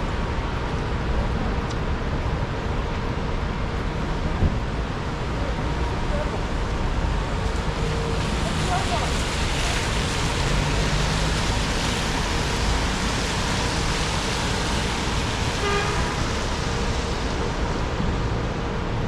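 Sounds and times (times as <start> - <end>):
traffic engines: 0.0 - 19.0
tyre hiss on wet road: 7.2 - 18.7.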